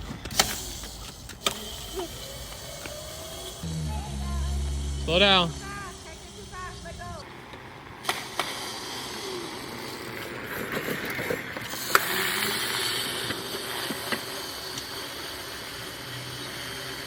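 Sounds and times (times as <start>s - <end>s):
sharp clicks: 0.0s - 3.7s
electric dirt bike rushing noise: 0.0s - 17.0s.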